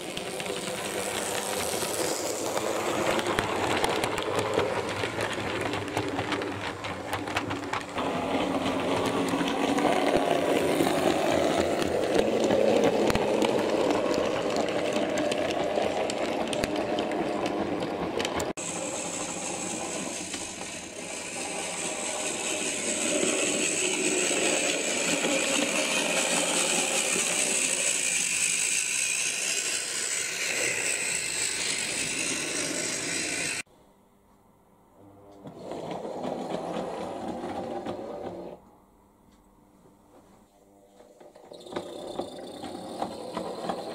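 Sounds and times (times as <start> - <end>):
wheels clicking over rail joints: 0.0 - 33.6, 41.0 - 43.9
small electric motor whirring: 18.6 - 33.7.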